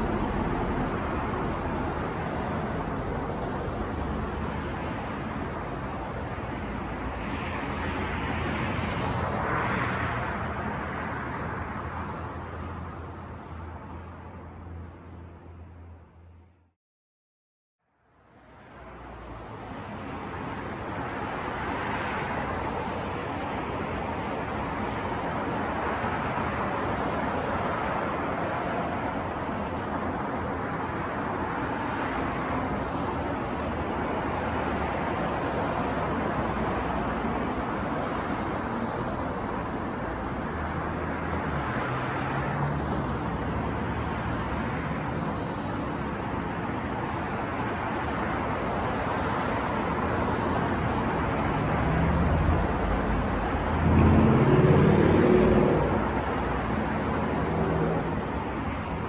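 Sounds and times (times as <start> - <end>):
passing cars: 0.0 - 16.5, 18.2 - 59.0
vehicle engine passing close: 51.5 - 58.2.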